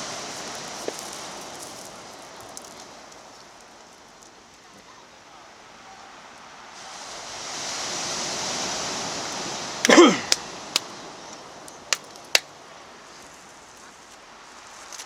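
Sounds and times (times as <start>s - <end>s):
sea waves washing up beach: 6.7s - 13.0s
loud sharp crack: 9.9s - 10.4s.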